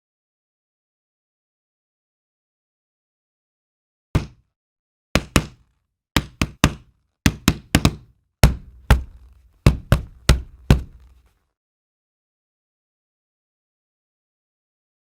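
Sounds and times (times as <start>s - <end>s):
sharp knocking: 4.2s - 4.4s, 5.2s - 5.6s, 6.2s - 11.2s.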